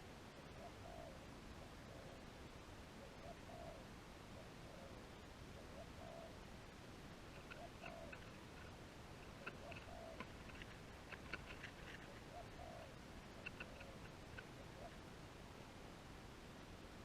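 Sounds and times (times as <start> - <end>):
dove cooing: 0.4 - 2.4, 3.0 - 6.5, 7.3 - 15.3
faint high clicks: 7.3 - 12.3, 13.2 - 14.6.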